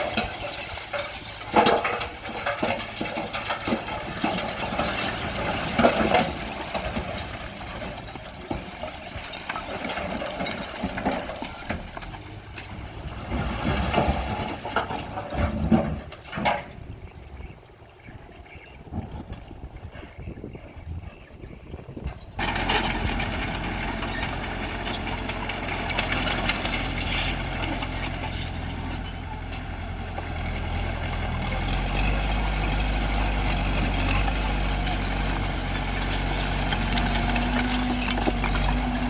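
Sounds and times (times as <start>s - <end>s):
bulldozer diesel engine running: 0.0s - 16.2s, 22.3s - 39.0s
rock and metal clanking: 0.0s - 16.8s, 22.3s - 29.7s.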